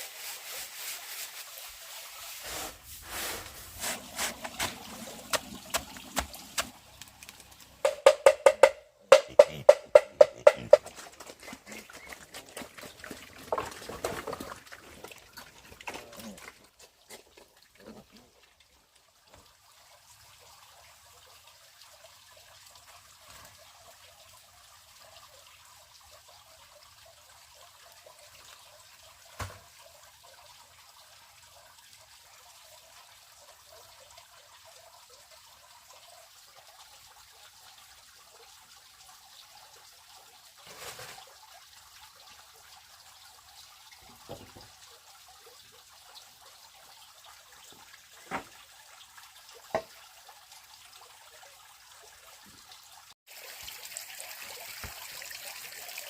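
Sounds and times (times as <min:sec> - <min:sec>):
trickling water: 0:00.0 - 0:56.0
short sharp knocks: 0:07.9 - 0:10.8.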